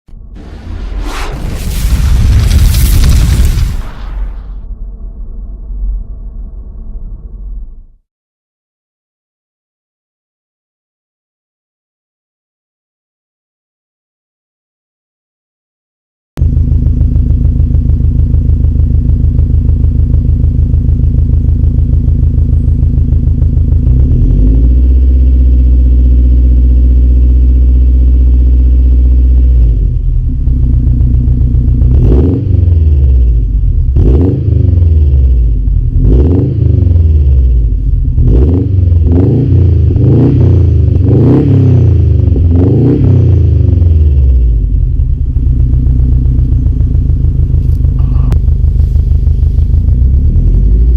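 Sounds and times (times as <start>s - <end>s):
car engine idling and revving: 16.4s - 50.9s.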